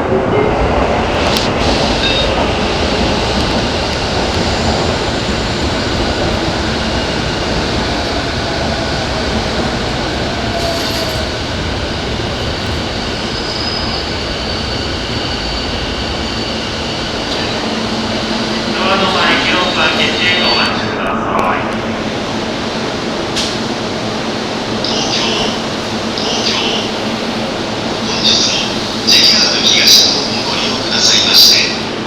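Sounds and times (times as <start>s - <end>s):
electric train rumbling: 0.0s - 32.0s
high wheel squeal: 12.7s - 17.6s.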